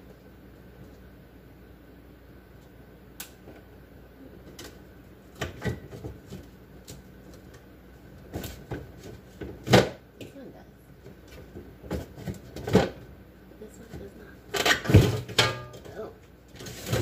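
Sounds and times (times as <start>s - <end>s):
items knocking in a refrigerator: 5.3s - 6.6s, 8.2s - 10.0s, 11.1s - 13.1s, 13.8s - 17.0s.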